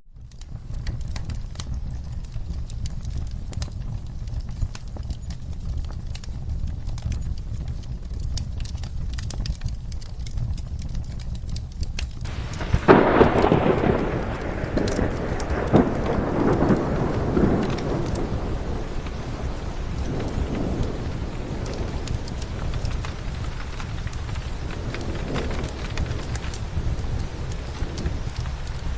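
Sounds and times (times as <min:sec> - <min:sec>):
steady rain: 0:00.1 - 0:28.9
fireplace logs crackling: 0:00.2 - 0:28.9
thunder rolling: 0:12.2 - 0:28.9.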